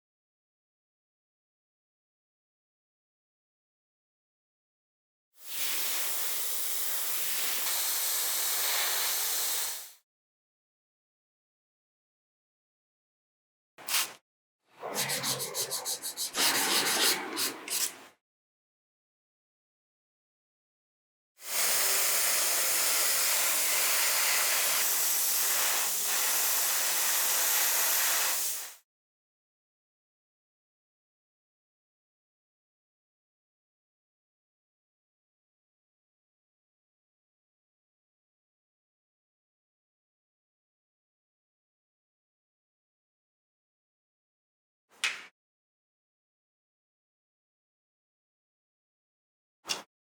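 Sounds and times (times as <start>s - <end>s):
spraying hiss: 14.8s - 18.0s
spray paint hissing: 14.8s - 18.1s, 24.2s - 28.8s.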